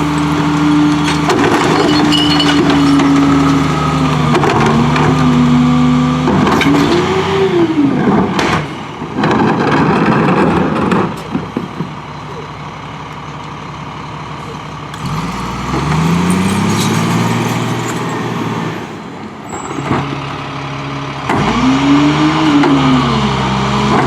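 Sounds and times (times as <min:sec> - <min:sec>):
dense clattering: 0:00.0 - 0:05.6
garbage truck engine whining: 0:00.0 - 0:24.0.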